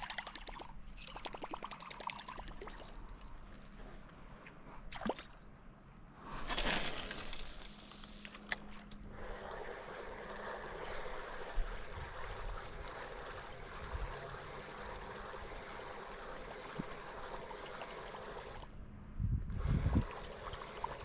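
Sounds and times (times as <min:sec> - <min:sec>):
running water trickling and gurgling: 0:09.1 - 0:18.7.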